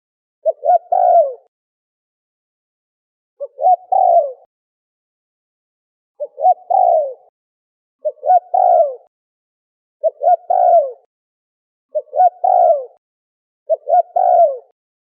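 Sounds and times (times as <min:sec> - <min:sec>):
dove cooing: 0:00.4 - 0:01.5, 0:03.4 - 0:04.5, 0:06.2 - 0:07.3, 0:08.0 - 0:09.1, 0:10.0 - 0:11.1, 0:11.9 - 0:13.0, 0:13.7 - 0:14.8.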